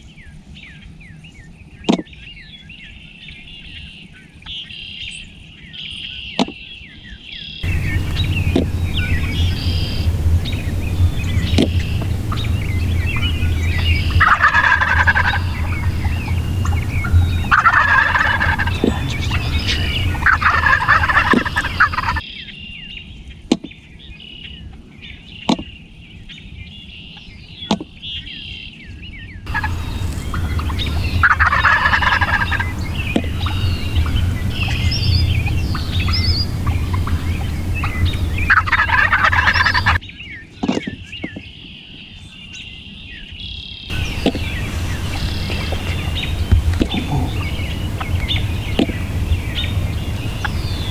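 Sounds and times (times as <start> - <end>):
low hum: 7.6 - 22.2, 29.5 - 40.0, 43.9 - 50.9
songbirds chirping: 7.6 - 22.2, 29.5 - 40.0, 43.9 - 50.9
turkeys gobbling: 7.6 - 22.2, 29.5 - 40.0, 43.9 - 50.9.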